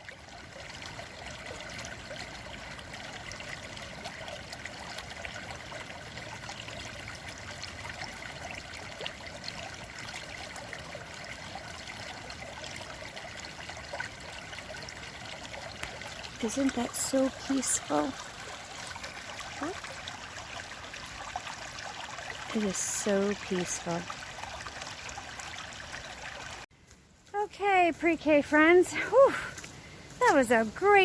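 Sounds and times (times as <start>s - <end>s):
stream trickling over stones: 0.0s - 31.0s.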